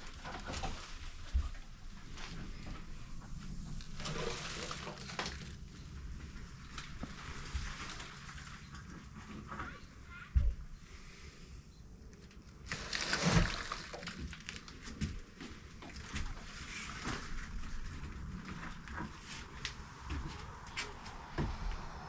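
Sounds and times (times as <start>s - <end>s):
rustling of handled objects: 12.2s - 21.9s.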